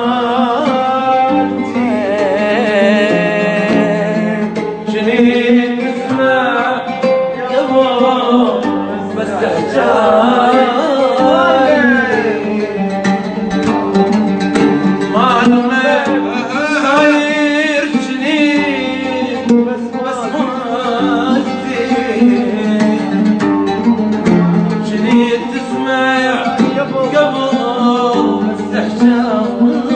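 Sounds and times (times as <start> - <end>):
person singing wavering notes: 0.0 - 13.8
oud playing: 0.0 - 29.9.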